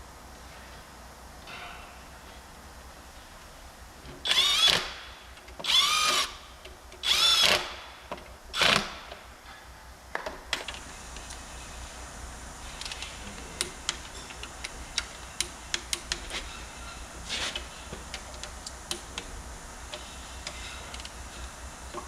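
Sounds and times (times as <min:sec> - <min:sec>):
power drill whirring: 0:04.2 - 0:05.0, 0:05.6 - 0:06.4, 0:07.0 - 0:07.8.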